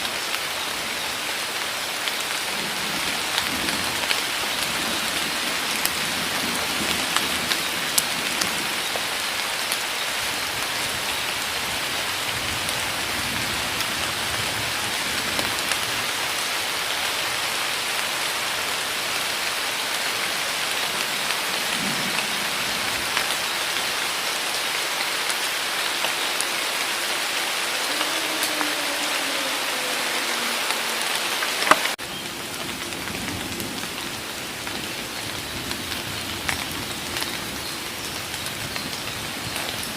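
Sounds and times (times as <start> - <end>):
heavy rain in forest: 0.0 - 39.9
raindrops tapping: 2.0 - 16.1, 19.8 - 39.9.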